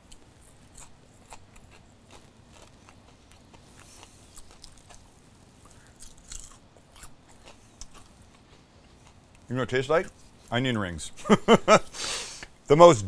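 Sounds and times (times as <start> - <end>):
person chewing crisp food: 0.0 - 9.5.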